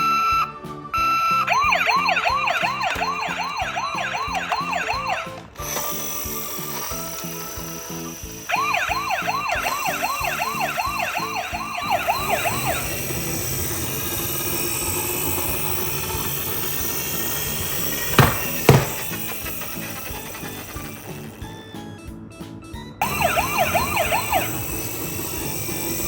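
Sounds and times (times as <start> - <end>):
electronic siren yelping: 1.0 - 5.4, 8.5 - 13.9, 23.0 - 25.8.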